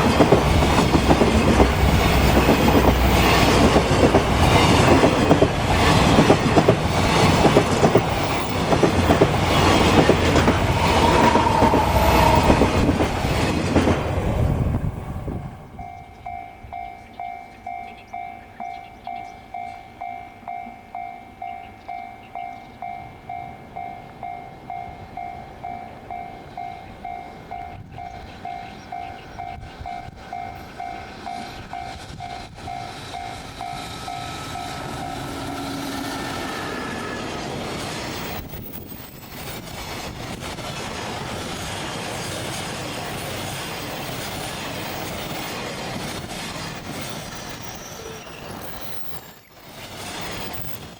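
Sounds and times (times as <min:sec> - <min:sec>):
train wheels screeching on rails: 0:00.0 - 0:16.4, 0:24.7 - 0:50.9
freight train rolling: 0:00.0 - 0:50.9
pulsing ringing tone: 0:15.8 - 0:37.4.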